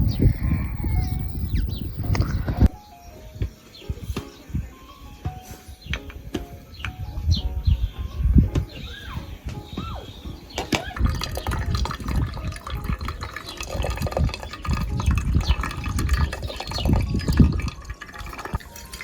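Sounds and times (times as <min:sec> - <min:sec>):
running water splashing: 0:10.6 - 0:19.0
water drips: 0:10.6 - 0:19.0.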